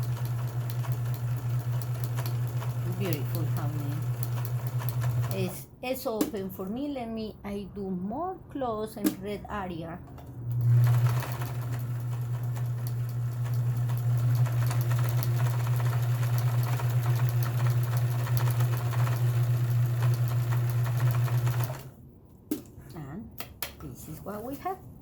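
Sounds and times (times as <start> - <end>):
sewing machine running: 0.0 - 5.6, 10.5 - 22.0.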